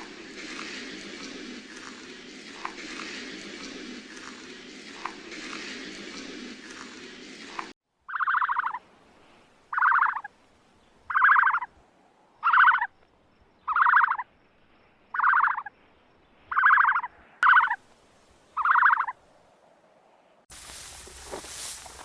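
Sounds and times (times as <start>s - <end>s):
animal pulsed calls: 0.0s - 8.8s, 9.7s - 10.3s, 11.1s - 11.7s, 12.4s - 12.9s, 13.7s - 14.2s, 15.1s - 15.7s, 16.5s - 17.8s, 18.6s - 19.2s.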